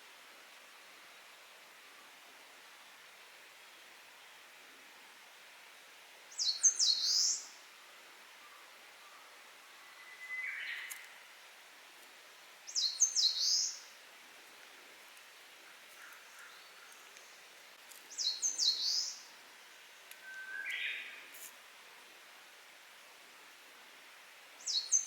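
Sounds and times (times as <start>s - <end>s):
outdoor background noise: 0.0s - 25.0s
warbler singing: 6.3s - 7.6s, 12.7s - 13.9s, 18.1s - 19.3s, 24.6s - 25.0s
faint lower bird call: 20.2s - 21.3s.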